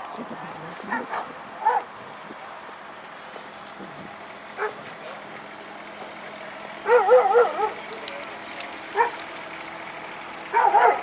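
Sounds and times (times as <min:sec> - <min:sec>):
dog whining: 0:06.9 - 0:07.8.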